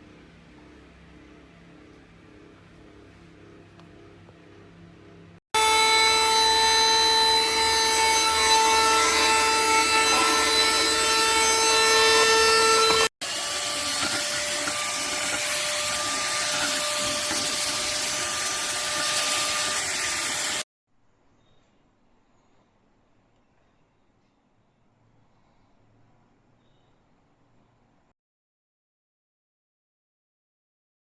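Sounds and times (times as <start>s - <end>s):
vacuum cleaner motor whining: 5.6s - 20.6s.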